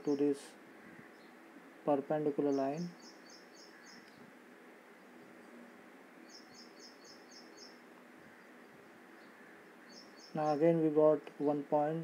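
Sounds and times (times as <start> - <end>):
faint high bird chirps: 2.4 - 4.2, 6.2 - 8.6, 9.2 - 10.7.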